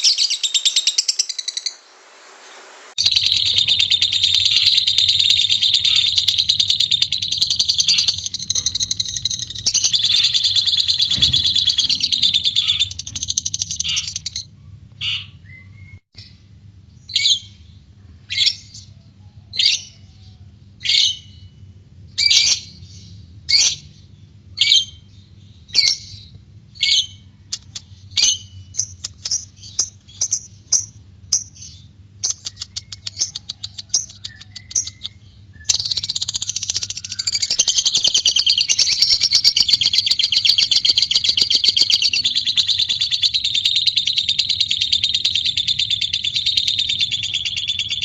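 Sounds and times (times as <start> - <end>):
bird chattering trill: 3.0 - 15.6, 27.0 - 48.0
bird sharp chirps: 3.0 - 16.4, 25.7 - 48.0.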